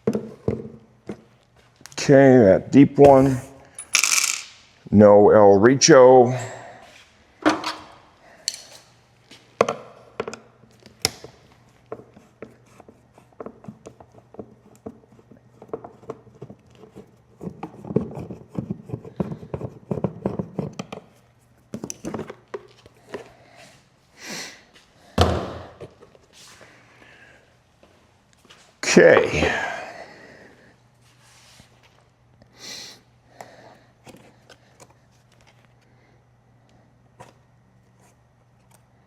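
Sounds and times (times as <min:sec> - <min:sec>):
clicks and knocks of hand tools: 0:07.5 - 0:08.9.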